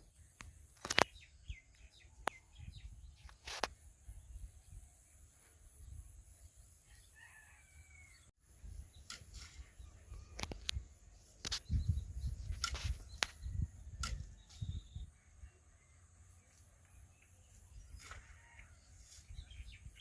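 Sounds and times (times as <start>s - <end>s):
sharp clicks or knocks: 14.0s - 14.4s.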